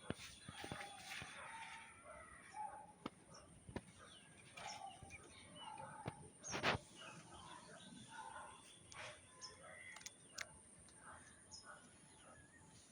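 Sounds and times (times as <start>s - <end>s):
birds chirping: 2.3s - 12.9s
sharp clicks: 9.9s - 11.0s.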